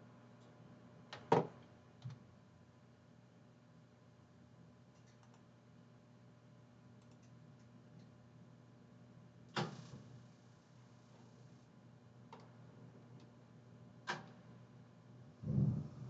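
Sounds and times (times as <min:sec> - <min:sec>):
low steady hum: 0:00.0 - 0:16.0
computer mouse clicks: 0:04.9 - 0:05.5, 0:07.0 - 0:08.1.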